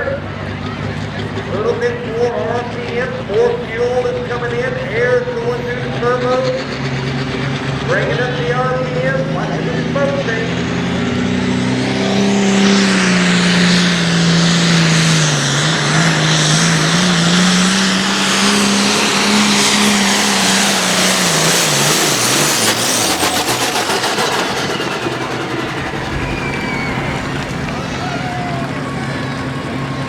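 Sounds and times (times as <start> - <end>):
engine rough rapid pulsing: 0.0 - 30.0
diesel tractor engine under load: 6.6 - 30.0.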